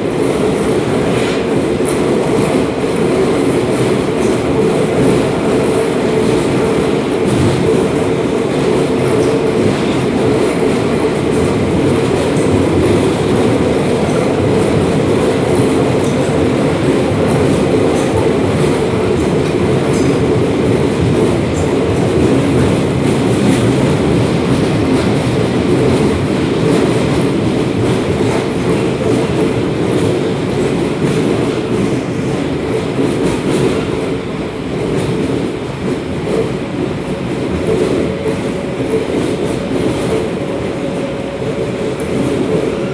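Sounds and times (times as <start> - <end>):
train wheels rumbling on track: 0.0 - 42.9.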